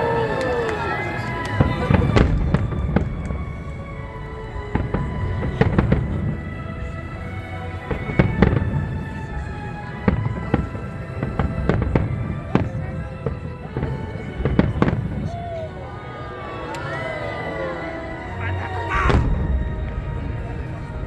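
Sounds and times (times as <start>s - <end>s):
music playing: 0.0s - 21.0s
fireworks bangs: 0.1s - 3.6s, 10.1s - 15.5s, 19.0s - 21.0s.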